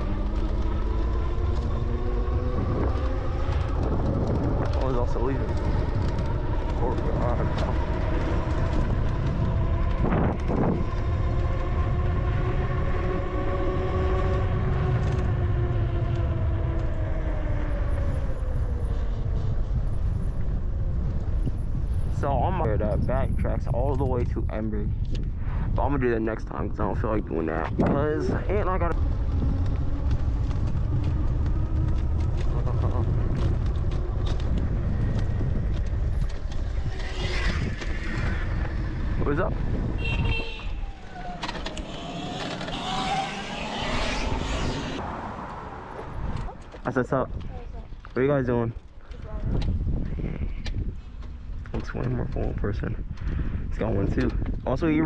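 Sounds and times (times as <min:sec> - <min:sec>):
wind buffeting microphone: 0:00.0 - 0:55.0
bicycle clicks and rattles: 0:29.0 - 0:38.8.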